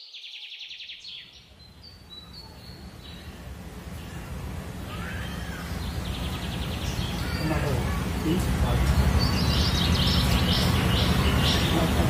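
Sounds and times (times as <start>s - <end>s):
low background rumble: 1.3s - 12.0s
bird trilling: 4.0s - 12.0s.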